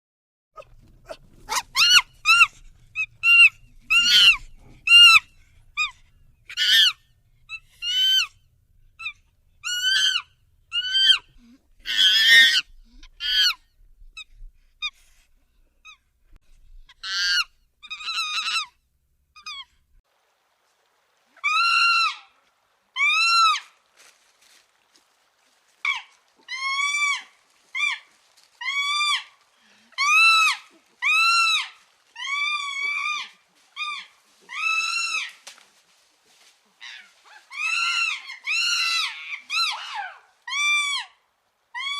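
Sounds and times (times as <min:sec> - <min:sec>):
chimpanzee rough scream: 0:00.6 - 0:05.9, 0:06.5 - 0:08.3, 0:09.0 - 0:13.6, 0:16.9 - 0:18.7, 0:21.4 - 0:22.4, 0:23.0 - 0:23.7, 0:25.8 - 0:35.5, 0:36.8 - 0:41.9
chimpanzee high-pitched calls: 0:00.6 - 0:08.4, 0:09.0 - 0:13.6, 0:16.9 - 0:18.8, 0:19.4 - 0:19.8, 0:21.4 - 0:22.4, 0:23.0 - 0:23.7, 0:25.8 - 0:35.6, 0:36.8 - 0:41.9.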